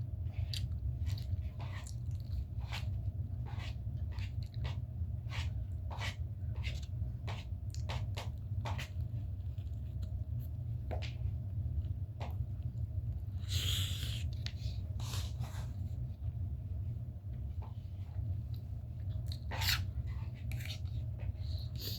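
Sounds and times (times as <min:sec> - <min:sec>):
chewing egg: 0:00.4 - 0:02.5
breathy hiss: 0:13.4 - 0:14.3.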